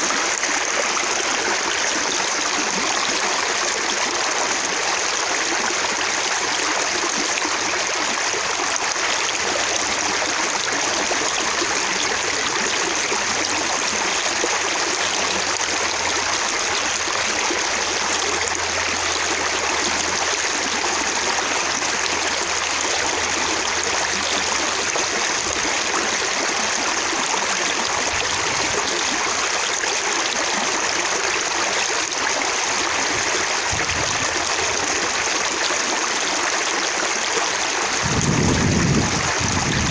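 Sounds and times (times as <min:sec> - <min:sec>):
running water splashing: 0:36.8 - 0:39.9.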